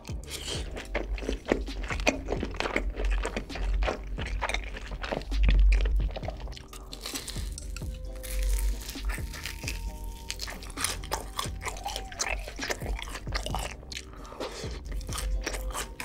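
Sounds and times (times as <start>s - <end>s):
wet mouth clicks: 0.0s - 7.8s
crunchy chewing of fried chicken: 0.0s - 16.0s.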